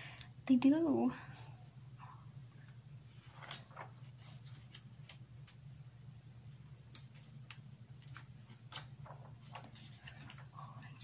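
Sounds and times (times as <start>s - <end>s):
steady low hum: 0.0s - 11.0s
magazine pages turning: 3.1s - 5.7s, 6.9s - 11.0s.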